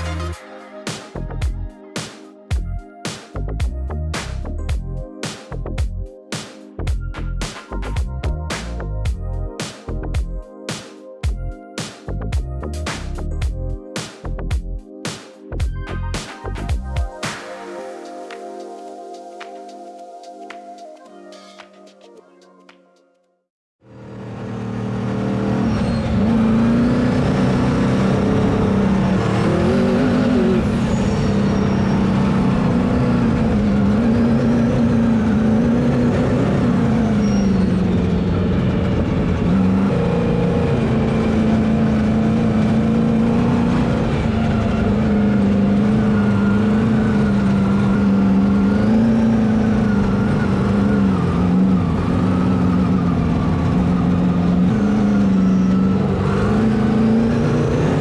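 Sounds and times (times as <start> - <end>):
vehicle engine revving: 24.1 - 58.0.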